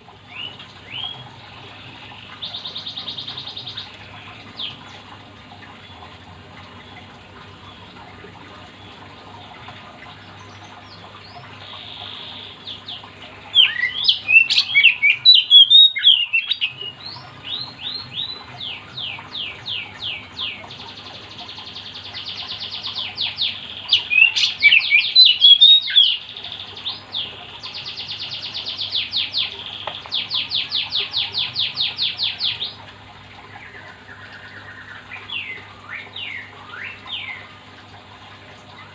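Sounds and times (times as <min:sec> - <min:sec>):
bird singing whistled phrases: 0:13.6 - 0:16.7, 0:24.0 - 0:26.2.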